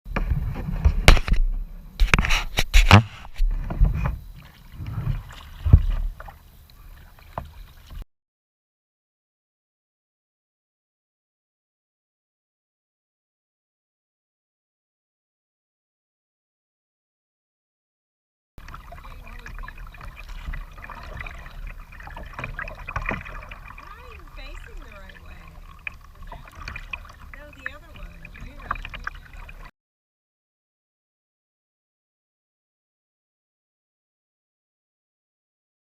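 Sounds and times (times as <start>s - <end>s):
knocks and clunks on a kayak: 0.1s - 8.0s, 18.6s - 29.7s
water splashing from paddling: 0.1s - 8.0s, 18.6s - 29.7s.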